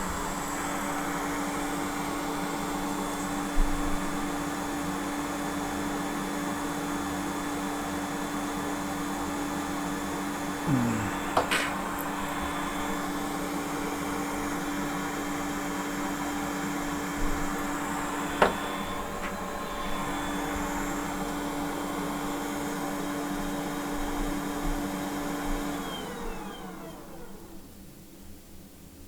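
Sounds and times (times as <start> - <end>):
hot air blower running: 10.7 - 13.1.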